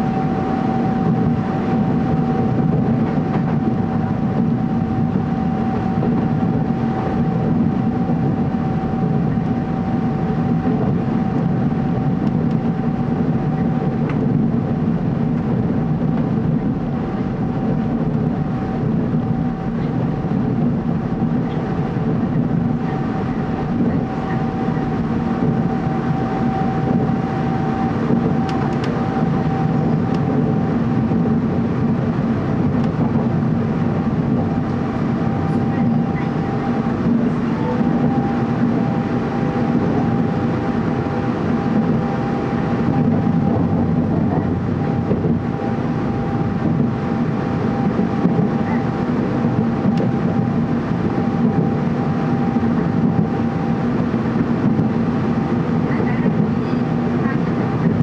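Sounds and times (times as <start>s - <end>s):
train cabin rumble: 0.0s - 58.0s.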